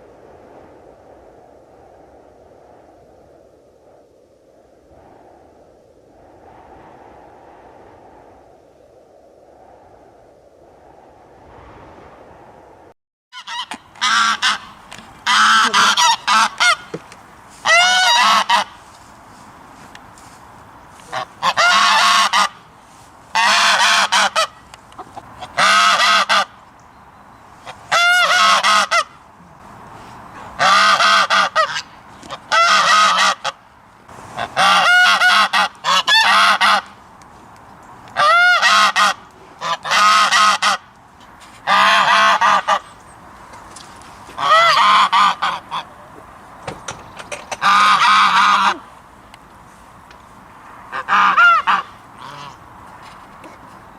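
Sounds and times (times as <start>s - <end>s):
goose honking: 13.4s - 17.0s, 17.6s - 18.8s, 21.0s - 22.6s, 23.3s - 26.5s, 27.6s - 29.2s, 30.6s - 33.6s, 34.4s - 36.9s, 38.2s - 40.8s, 41.6s - 42.8s, 44.4s - 45.9s, 47.5s - 48.9s, 50.9s - 52.6s.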